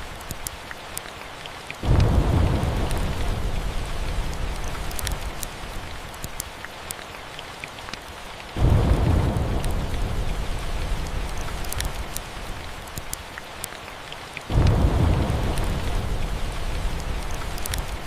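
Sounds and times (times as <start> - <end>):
small crackles: 0.0 - 8.7, 9.3 - 18.0
steady rain: 0.0 - 18.0
thunder rumbling: 1.8 - 5.8, 8.6 - 12.8, 14.5 - 18.0.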